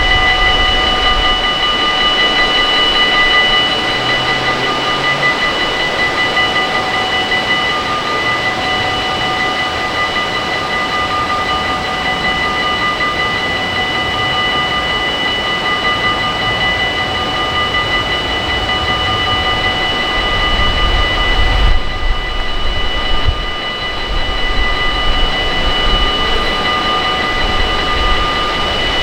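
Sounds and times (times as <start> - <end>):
high-pitched whine: 0.0 - 29.0
train running past: 0.0 - 29.0.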